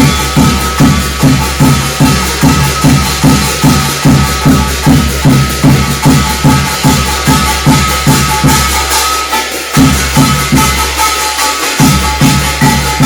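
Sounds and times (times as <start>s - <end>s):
drum steady beat: 0.0s - 13.0s
jingling metal percussion: 0.0s - 13.0s.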